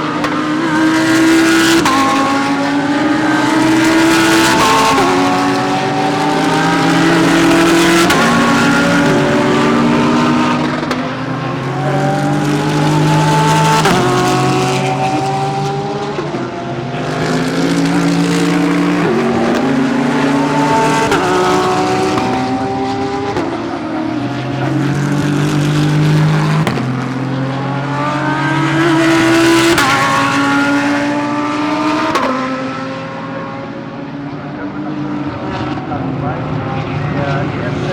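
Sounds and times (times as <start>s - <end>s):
race car engines accelerating: 0.0s - 37.9s.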